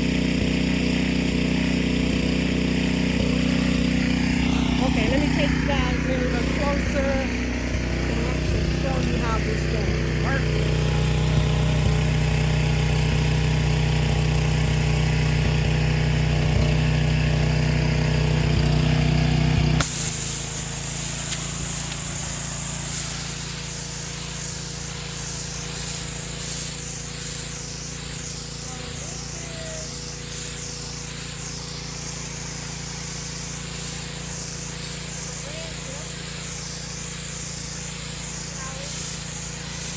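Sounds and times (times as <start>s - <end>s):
pressure washer engine running: 0.0s - 39.9s
high hiss of spray: 19.8s - 39.9s.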